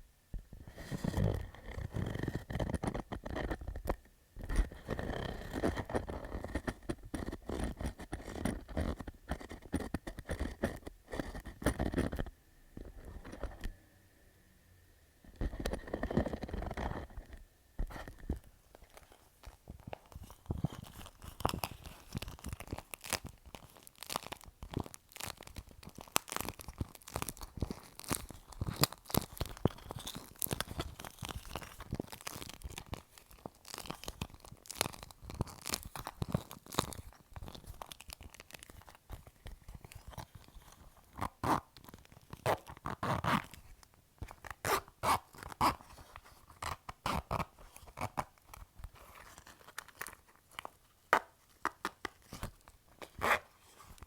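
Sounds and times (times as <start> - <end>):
fingertips tapping on plastic pouch: 4.9 - 12.3, 15.4 - 54.0
plastic crinkling: 17.9 - 54.0.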